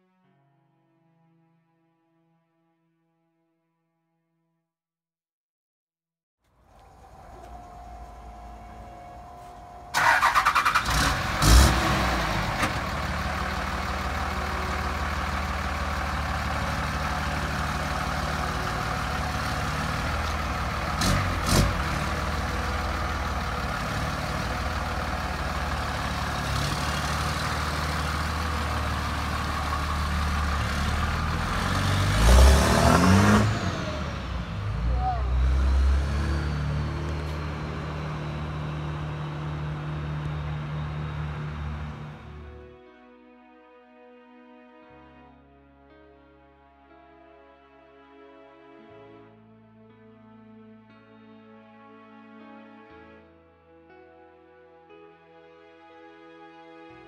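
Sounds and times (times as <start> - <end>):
truck engine starting and idling: 6.5 - 42.6
engine revving: 6.7 - 42.5.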